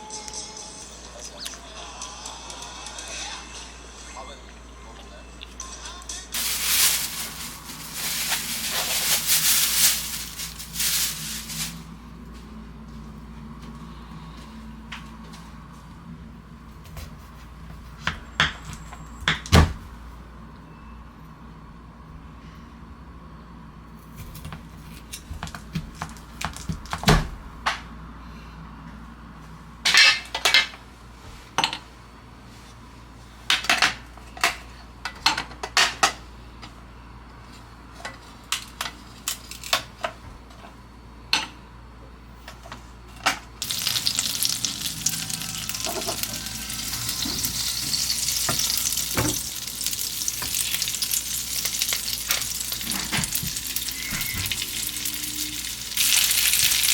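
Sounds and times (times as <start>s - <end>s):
food sizzling in a pan: 6.4s - 11.8s, 43.6s - 56.9s
utensils clinking on dishes: 29.9s - 30.8s, 43.2s - 56.9s.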